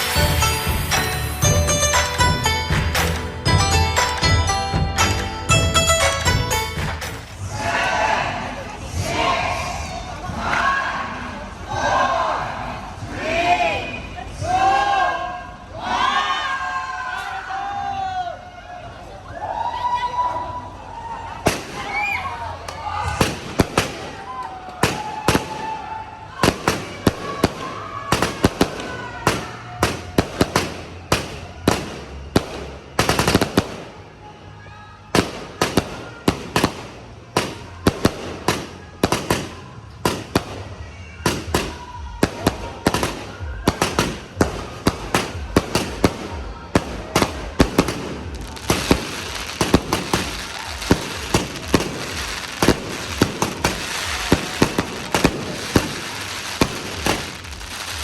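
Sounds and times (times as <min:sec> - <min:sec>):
fireworks banging: 0:00.0 - 0:07.5, 0:21.4 - 0:34.2, 0:35.1 - 0:58.0
fireworks whistling: 0:00.0 - 0:07.5, 0:21.4 - 0:34.2, 0:35.1 - 0:58.0
fireworks crackling: 0:00.0 - 0:07.6, 0:21.4 - 0:34.4, 0:35.1 - 0:58.0.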